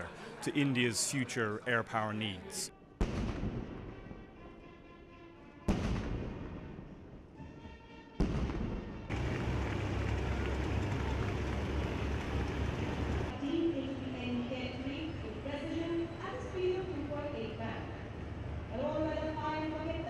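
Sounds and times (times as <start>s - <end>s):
jet aircraft rumble: 9.1s - 13.3s.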